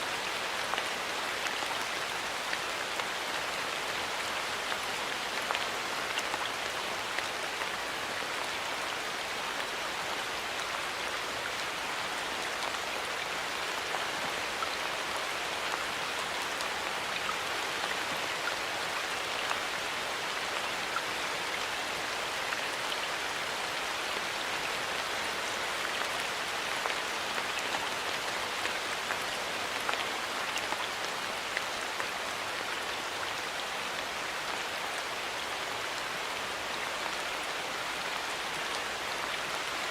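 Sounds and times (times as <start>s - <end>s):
rain pattering on leaves: 0.0s - 39.9s.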